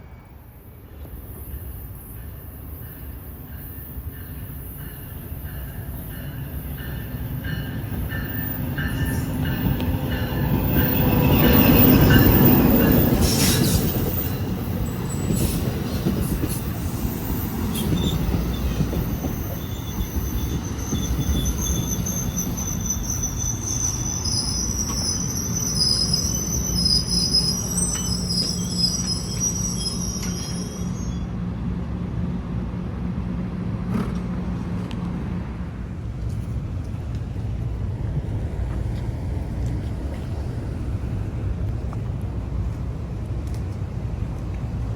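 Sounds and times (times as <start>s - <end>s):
train passing: 0.0s - 44.9s
wheel squeal: 8.1s - 31.3s.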